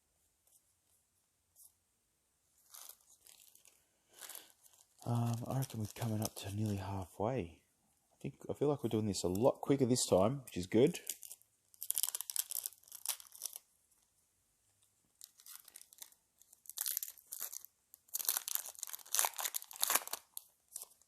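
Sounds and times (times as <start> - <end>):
foil wrapper tearing and crinkling: 2.6 - 6.8, 11.0 - 13.7, 15.2 - 21.0.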